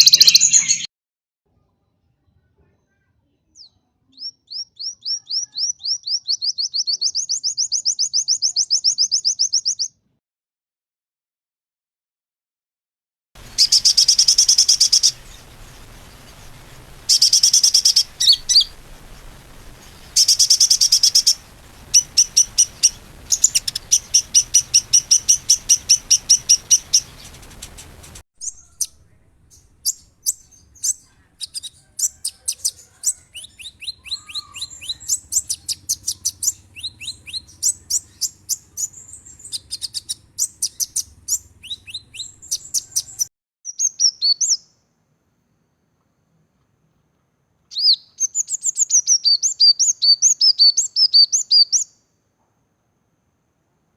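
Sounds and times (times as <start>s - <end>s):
songbirds chirping trills: 13.4s - 43.3s.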